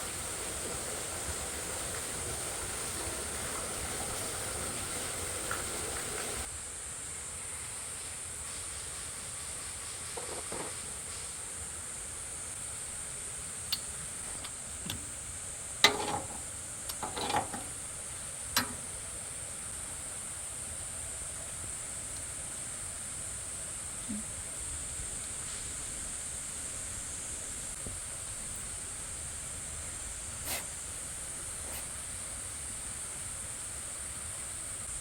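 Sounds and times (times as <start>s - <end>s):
steady high hiss: 0.0s - 35.0s
sharp clicks and knocks: 13.7s - 15.2s, 15.8s - 17.8s, 18.6s - 19.0s.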